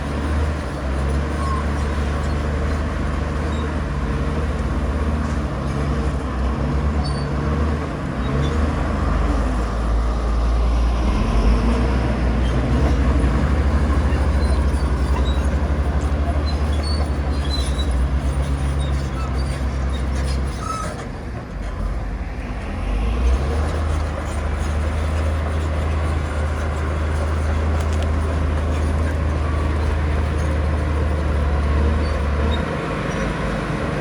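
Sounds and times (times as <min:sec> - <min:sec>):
diesel machinery engine rumble: 0:00.0 - 0:34.0.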